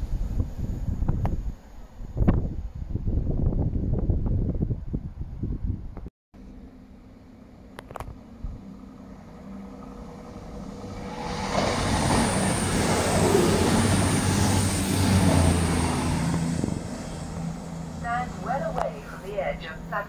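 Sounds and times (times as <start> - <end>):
diesel engine hum: 6.4 - 20.0
train wheel and rail noise: 7.2 - 20.0.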